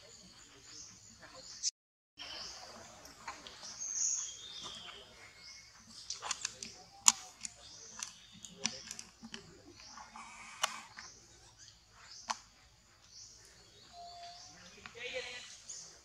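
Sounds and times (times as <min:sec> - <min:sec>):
birds chirping: 0:00.0 - 0:16.0
sharp clicks: 0:06.0 - 0:09.4.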